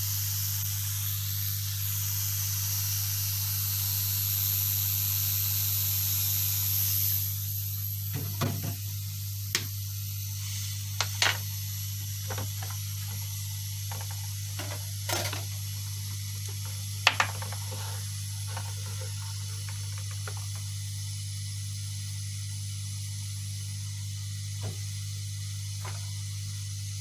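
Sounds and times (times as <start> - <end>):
hot-air station blowing: 6.3 - 27.0.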